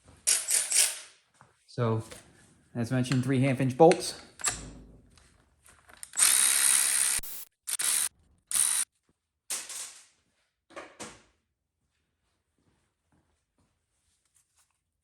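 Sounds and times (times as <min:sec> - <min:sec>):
power tool running in bursts: 0:06.2 - 0:08.8.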